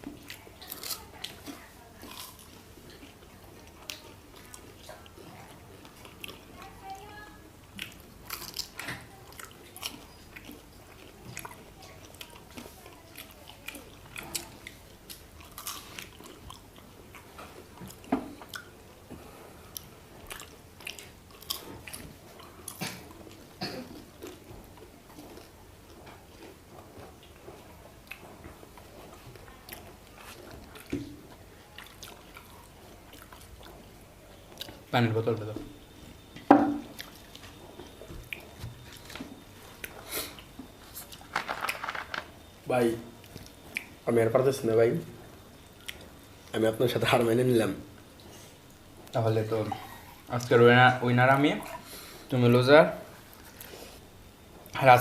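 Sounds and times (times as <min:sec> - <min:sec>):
crisp chewing crunches: 0:00.2 - 0:05.2, 0:07.7 - 0:18.8.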